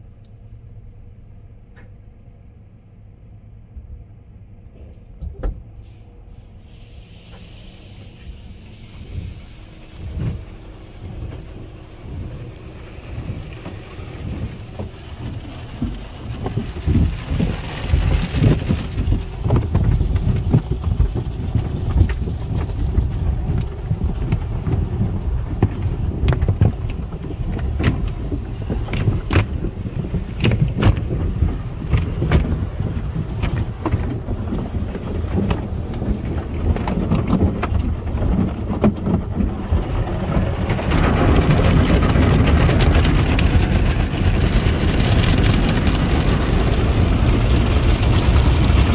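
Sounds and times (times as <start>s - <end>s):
car wash rumble: 0.0s - 48.9s
hiss of spray or air: 5.8s - 9.9s.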